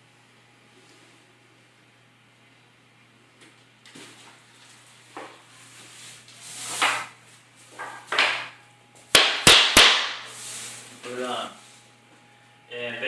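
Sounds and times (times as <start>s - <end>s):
wood planks scraping: 5.2s - 7.2s
sharp wooden knocks: 9.1s - 10.2s.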